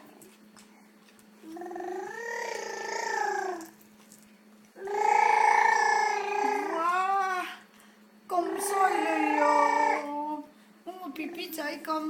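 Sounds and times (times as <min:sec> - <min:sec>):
baby making long vowel sound: 0:01.5 - 0:03.6, 0:04.8 - 0:07.6, 0:08.4 - 0:10.4.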